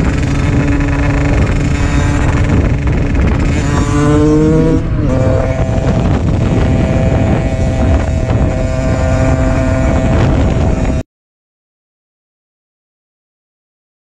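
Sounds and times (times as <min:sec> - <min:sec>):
car engine accelerating: 0:00.0 - 0:11.0
road and wind rumble: 0:00.0 - 0:11.0.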